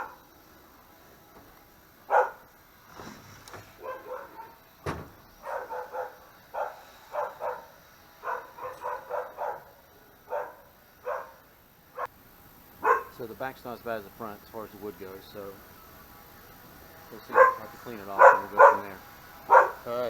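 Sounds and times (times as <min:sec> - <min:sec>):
dog barking and yipping: 0:00.0 - 0:00.3, 0:02.0 - 0:02.6, 0:03.7 - 0:12.1, 0:12.8 - 0:13.2, 0:17.2 - 0:19.9.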